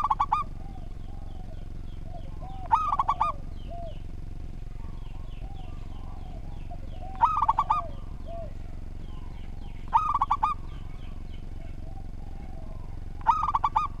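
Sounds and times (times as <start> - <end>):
dove cooing: 0.0 - 14.0
small birds chirping: 0.0 - 14.0.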